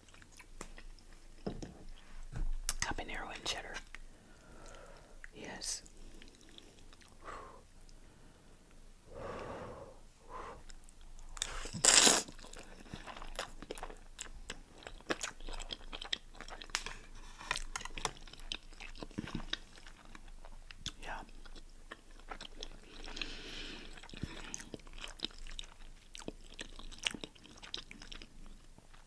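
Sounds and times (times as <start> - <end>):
chewing with wet mouth clicks: 0.0 - 2.0, 6.0 - 7.2, 10.6 - 29.0.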